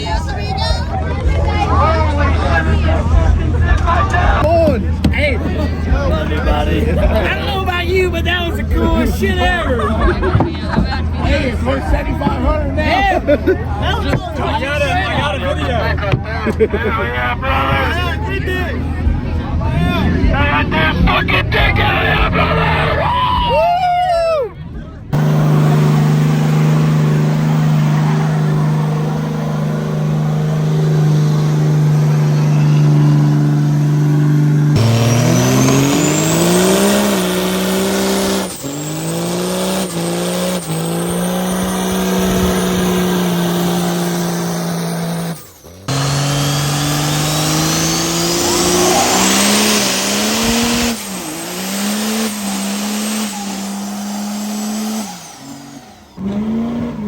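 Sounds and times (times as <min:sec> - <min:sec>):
truck engine revving high: 0:25.0 - 0:57.0
tire squeal: 0:25.2 - 0:57.0.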